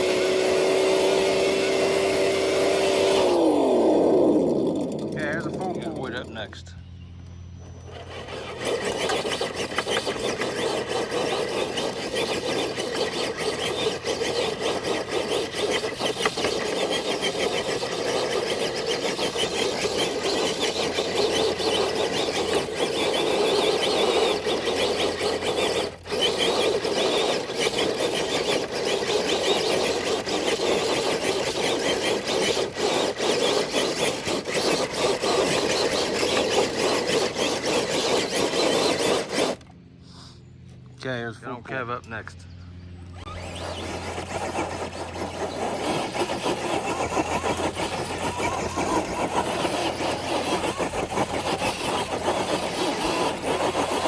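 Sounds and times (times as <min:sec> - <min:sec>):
toy truck electric motor whining: 0:00.0 - 0:06.2, 0:07.2 - 0:40.3, 0:43.0 - 0:54.0
sled scraping along ground: 0:07.6 - 0:39.6, 0:43.1 - 0:54.0.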